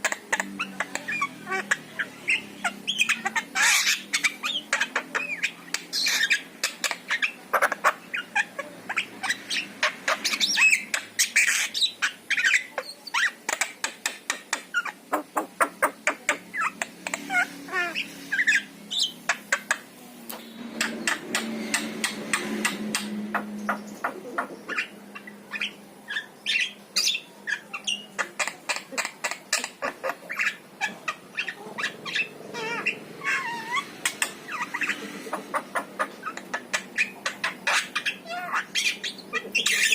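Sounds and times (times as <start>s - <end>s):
myna calling with clicks and squawks: 0.0s - 39.9s.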